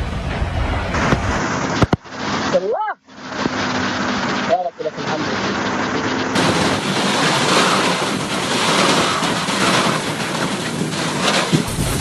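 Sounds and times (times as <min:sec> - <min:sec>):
strong wind: 0:00.0 - 0:04.5, 0:05.1 - 0:12.0
rushing water: 0:01.0 - 0:12.0.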